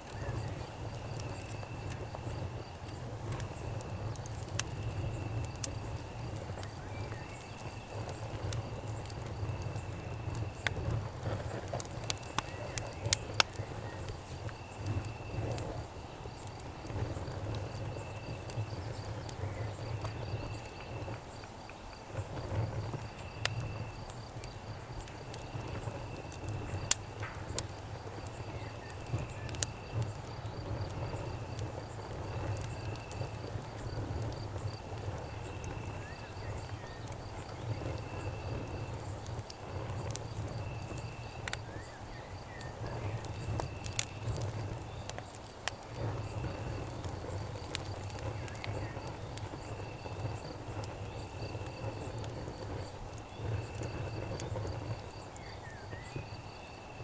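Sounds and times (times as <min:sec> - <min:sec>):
campfire crackling and popping: 0:00.0 - 0:57.0
crickets trilling: 0:00.0 - 0:57.0.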